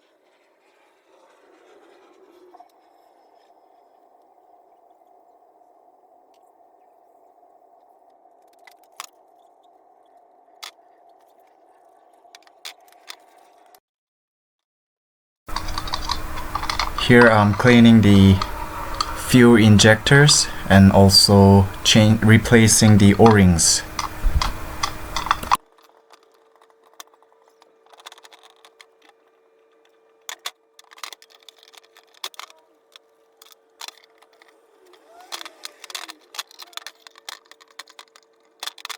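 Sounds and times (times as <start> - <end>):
sharp light clicks and taps: 15.5 - 17.1, 23.2 - 25.6
clicks and rattles of small parts: 15.5 - 19.2, 23.2 - 38.9
faint steady hum: 15.5 - 25.6.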